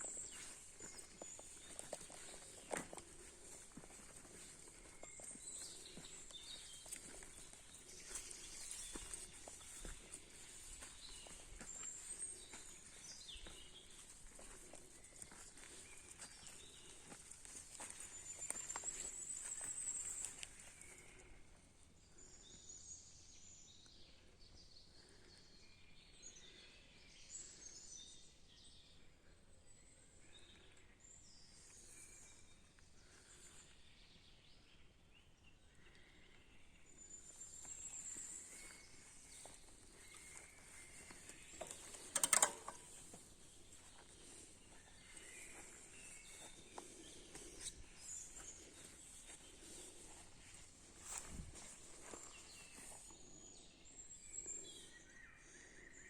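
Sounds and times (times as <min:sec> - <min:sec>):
faint bird chirps: 0:00.0 - 0:56.0
sharp click: 0:41.6 - 0:42.9.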